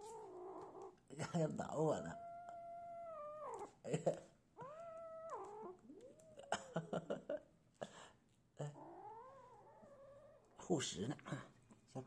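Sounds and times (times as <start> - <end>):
kitten warning cries: 2.0 - 3.8, 4.6 - 6.2.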